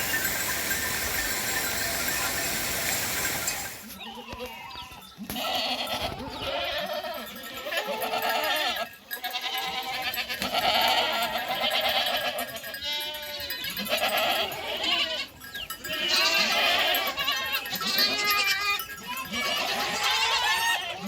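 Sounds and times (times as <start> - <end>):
goats bleating: 3.5 - 21.0.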